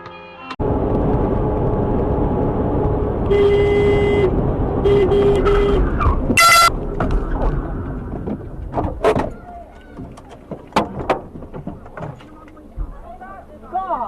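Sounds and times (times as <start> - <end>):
road and engine noise: 0.0 - 14.0
vehicle horn honking: 3.2 - 6.7.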